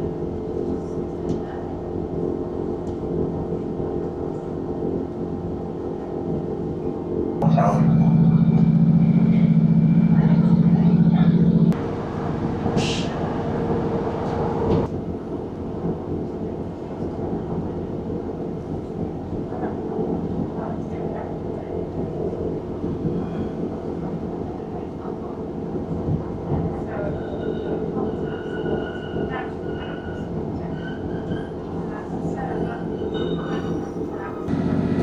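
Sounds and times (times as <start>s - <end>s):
train wheels rumbling on track: 0.0s - 35.0s
diesel engine: 7.4s - 14.9s, 34.5s - 35.0s.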